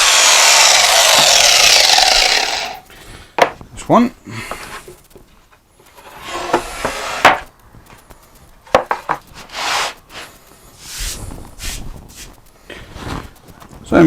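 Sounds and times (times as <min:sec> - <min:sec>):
wood scraping: 0:00.0 - 0:03.5, 0:04.4 - 0:07.5, 0:08.7 - 0:13.6
rubbing swishes: 0:09.3 - 0:13.8.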